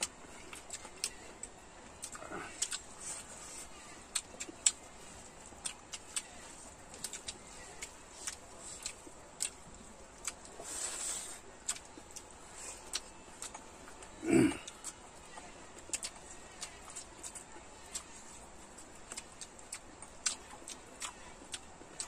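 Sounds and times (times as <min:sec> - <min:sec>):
wet chewing clicks and smacks: 0:00.0 - 0:22.0.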